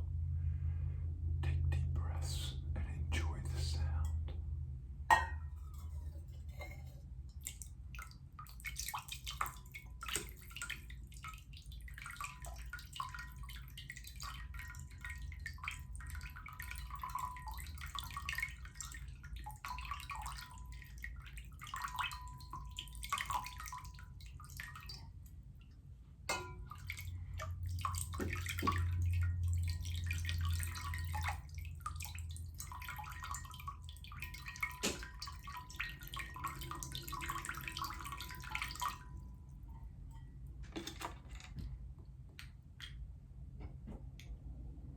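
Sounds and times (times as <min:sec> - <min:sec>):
low steady hum: 0:00.0 - 0:44.9
water splashing and dripping: 0:05.2 - 0:25.7, 0:26.3 - 0:40.2.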